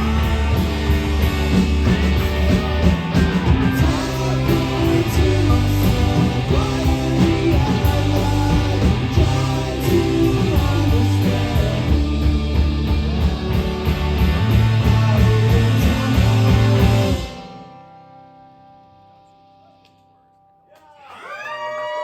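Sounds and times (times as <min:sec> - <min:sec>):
rock band playing: 0:00.0 - 0:18.8
person singing: 0:03.7 - 0:13.7, 0:14.8 - 0:17.4.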